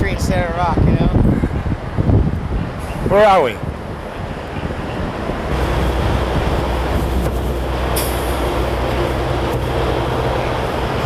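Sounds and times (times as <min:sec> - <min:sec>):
diesel engine rumbling: 0:01.2 - 0:11.0.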